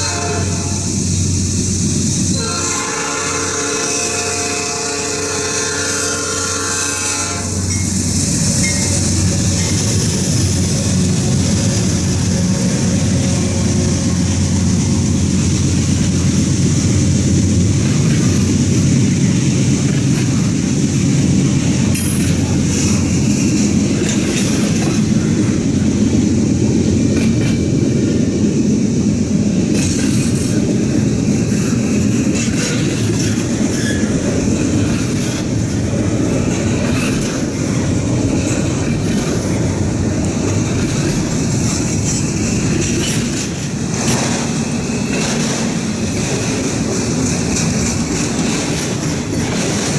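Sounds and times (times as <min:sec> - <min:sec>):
steel wheels rumbling on rail: 0:00.0 - 0:49.9
wheels clicking over rail joints: 0:07.3 - 0:26.1, 0:29.6 - 0:49.9.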